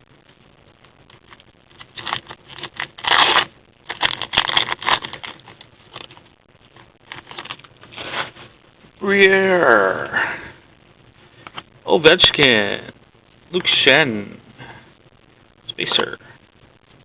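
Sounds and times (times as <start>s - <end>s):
card wrapper rustling: 1.3s - 8.5s.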